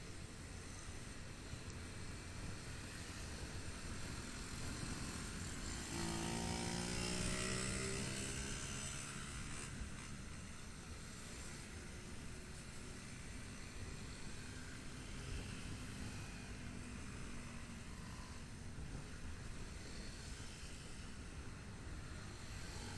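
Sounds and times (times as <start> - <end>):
motorcycle engine and road noise: 0.0 - 22.9
passing vehicle engine: 4.6 - 10.2.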